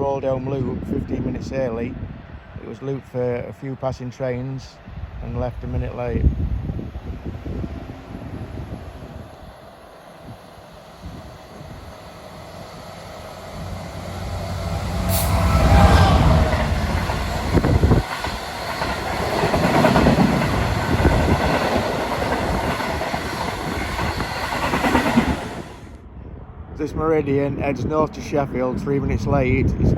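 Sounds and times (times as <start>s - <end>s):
locomotive engine rumble: 6.9s - 25.9s
train wheels clattering on rails: 13.5s - 25.9s.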